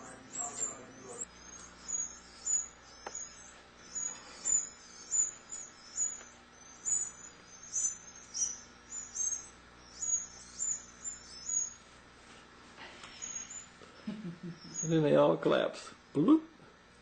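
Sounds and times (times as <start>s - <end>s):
canaries chirping: 0.0s - 11.9s, 13.1s - 13.8s, 14.4s - 15.3s.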